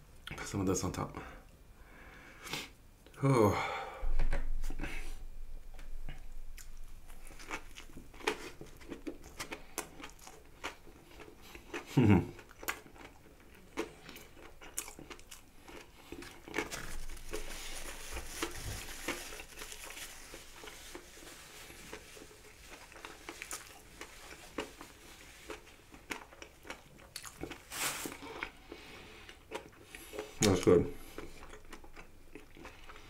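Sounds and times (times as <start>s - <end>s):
chewing crunchy food: 6.1s - 33.0s.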